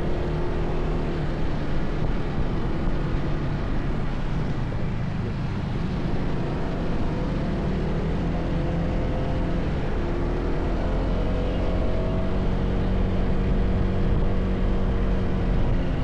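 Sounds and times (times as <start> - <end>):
road rumble: 0.0 - 16.0.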